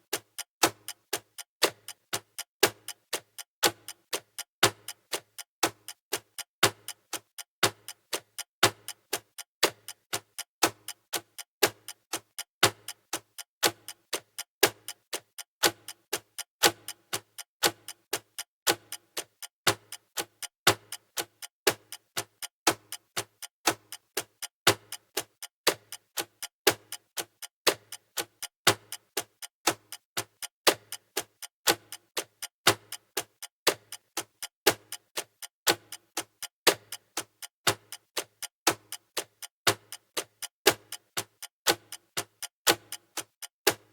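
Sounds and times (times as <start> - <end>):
clock ticking: 0.0 - 43.9.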